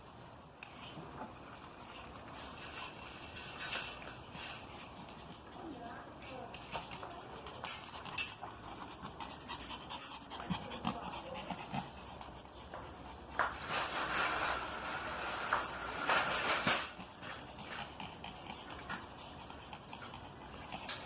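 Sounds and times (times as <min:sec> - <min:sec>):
dog panting: 0:01.3 - 0:21.0.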